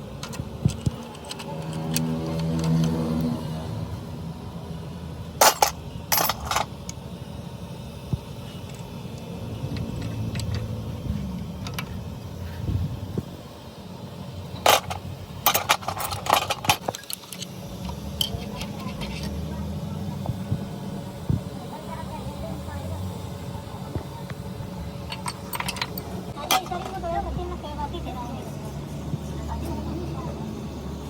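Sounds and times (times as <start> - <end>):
metallic clinks and knocks: 5.4 - 6.7, 14.6 - 19.4, 25.0 - 27.0.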